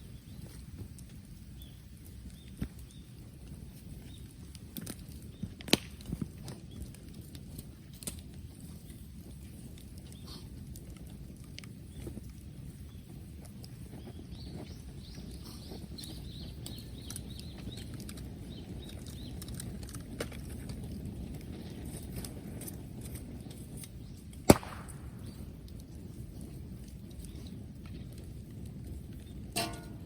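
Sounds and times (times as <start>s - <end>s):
bonfire rumbling and crackling: 0.0s - 30.0s
bamboo cracking loudly: 4.8s - 6.6s, 23.8s - 25.9s.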